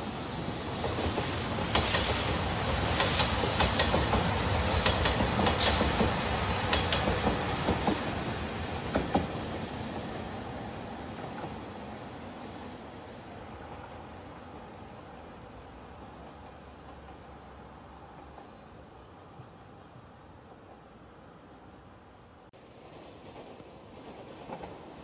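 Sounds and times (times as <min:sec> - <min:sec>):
diesel train rumbling past: 0:00.0 - 0:25.0.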